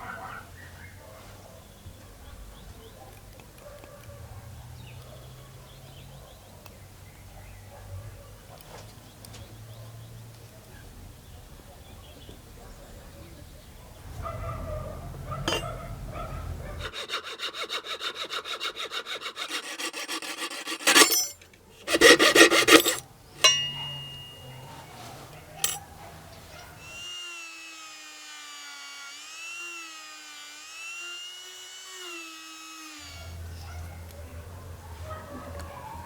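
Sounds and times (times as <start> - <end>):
filing strokes on brass: 15.5 - 15.7, 16.8 - 24.4.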